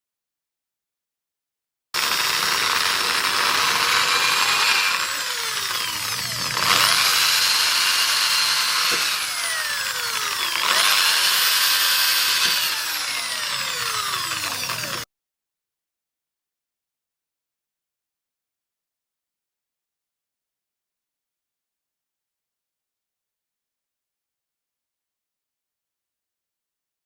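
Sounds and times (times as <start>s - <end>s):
power tool whining: 2.0s - 15.1s.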